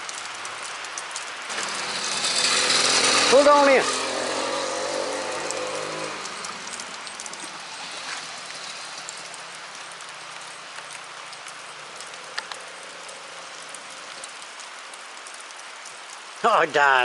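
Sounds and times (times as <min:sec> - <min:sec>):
louder raindrops: 0:00.0 - 0:17.0
rain pattering: 0:00.0 - 0:17.0
small two-stroke engine: 0:01.5 - 0:09.7.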